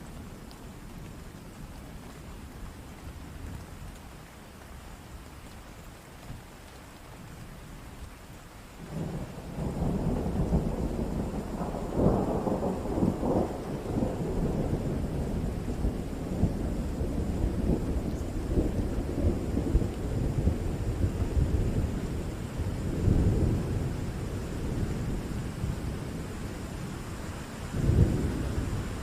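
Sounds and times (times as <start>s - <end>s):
steady rain: 0.0s - 29.0s
thunder rolling and crackling: 8.8s - 29.0s.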